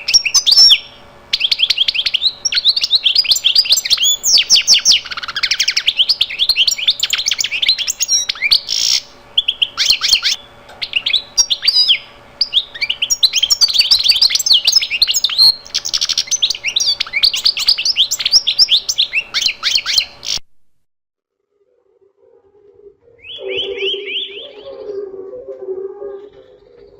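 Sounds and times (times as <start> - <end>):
bird chirping: 0.0 - 20.4, 23.2 - 26.9.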